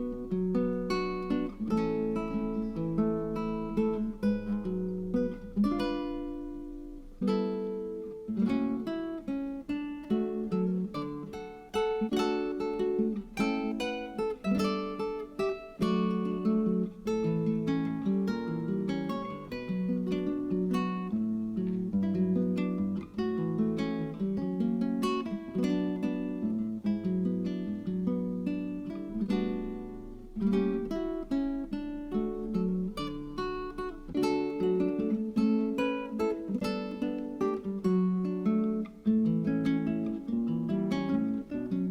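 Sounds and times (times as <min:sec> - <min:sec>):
acoustic guitar chords: 0:00.0 - 0:41.9.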